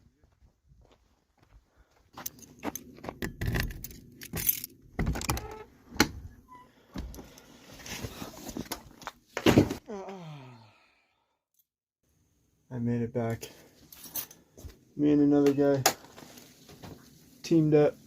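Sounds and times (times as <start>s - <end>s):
keys jangling: 2.2s - 4.8s.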